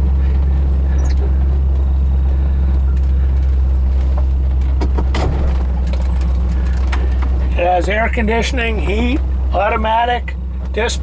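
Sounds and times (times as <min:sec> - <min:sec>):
car engine drone: 0:00.0 - 0:11.0
road noise: 0:00.0 - 0:11.0
brief rattles: 0:04.6 - 0:07.4.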